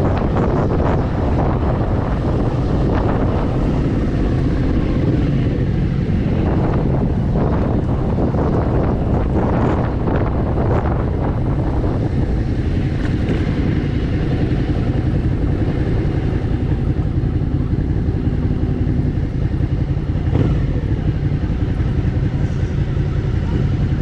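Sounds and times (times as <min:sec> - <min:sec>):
motorcycle engine at low revs: 0:00.0 - 0:24.0
wind buffeting microphone: 0:00.0 - 0:24.0.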